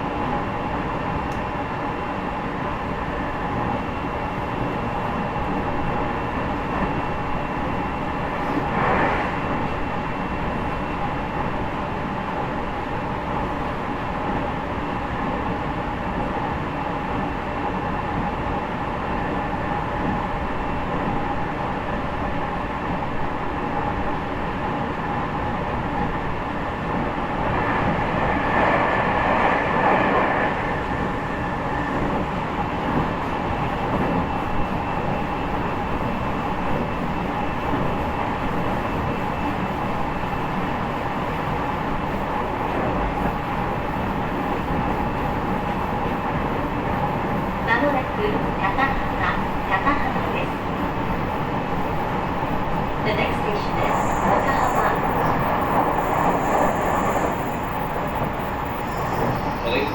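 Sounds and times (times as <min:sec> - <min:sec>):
train interior rumble: 0:00.0 - 0:59.9.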